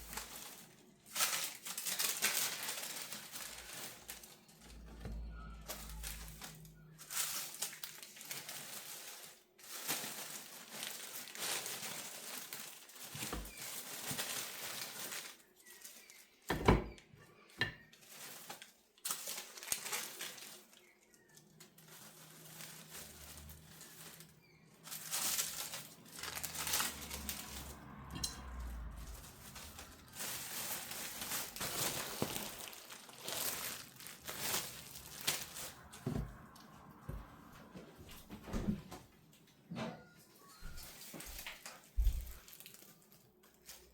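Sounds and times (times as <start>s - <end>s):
baking paper crinkling: 0.0s - 38.4s, 40.4s - 43.9s.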